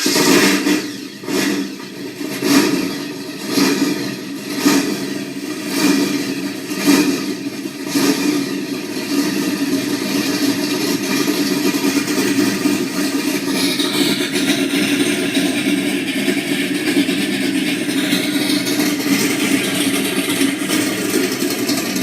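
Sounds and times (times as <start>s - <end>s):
car engine revving and idling: 0.0s - 22.0s.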